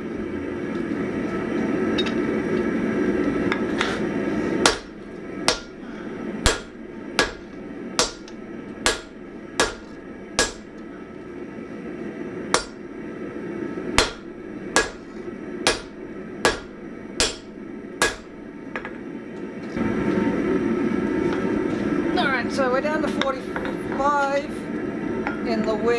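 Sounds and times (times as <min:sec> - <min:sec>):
hammer striking steel on anvil: 0:04.6 - 0:05.8, 0:06.4 - 0:10.8, 0:12.6 - 0:12.8, 0:14.0 - 0:18.4.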